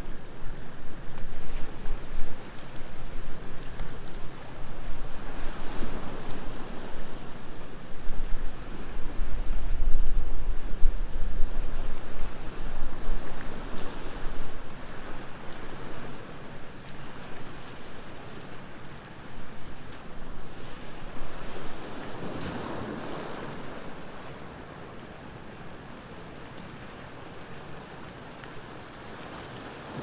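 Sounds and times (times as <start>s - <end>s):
wind rumbling on microphone: 0.0s - 18.2s, 19.2s - 24.7s
sea waves washing onto shore: 0.0s - 30.0s.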